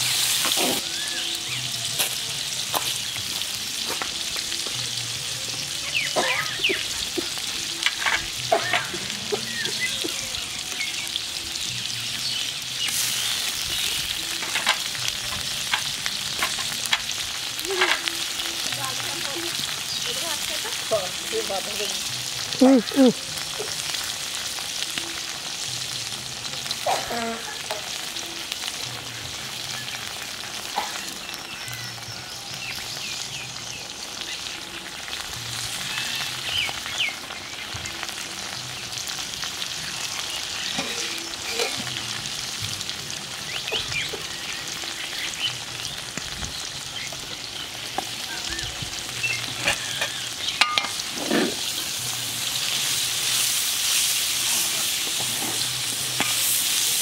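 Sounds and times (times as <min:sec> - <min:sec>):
food sizzling in oil: 0:00.0 - 0:57.0
metal ladle clinking on pan: 0:49.6 - 0:51.0.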